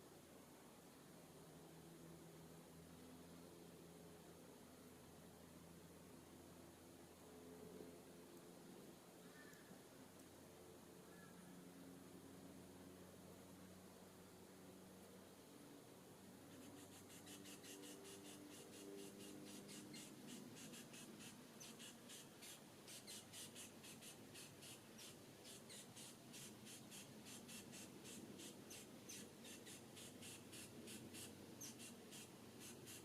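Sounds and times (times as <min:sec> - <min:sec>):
insect chirping: 0:16.5 - 0:33.0.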